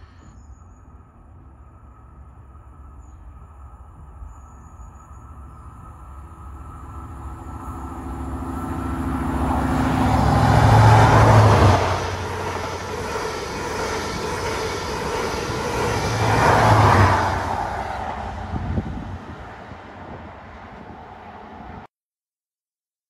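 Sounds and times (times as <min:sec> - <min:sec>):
diesel train engine passing: 0:00.0 - 0:21.8.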